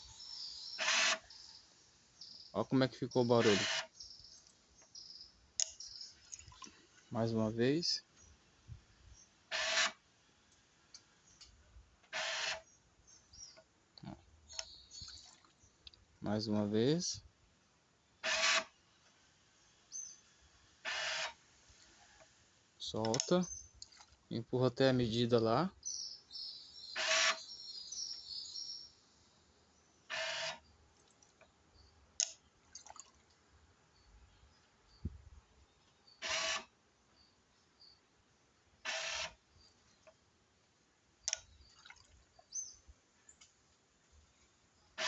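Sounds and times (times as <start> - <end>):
birds chirping: 0.0 - 8.4, 12.6 - 17.2, 22.9 - 30.8
faint clicks: 32.2 - 32.4, 41.2 - 41.5.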